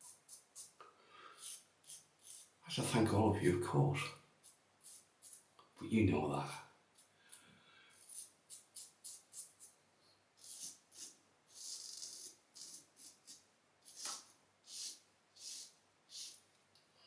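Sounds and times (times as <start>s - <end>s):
razor scraping stubble: 10.4s - 16.4s.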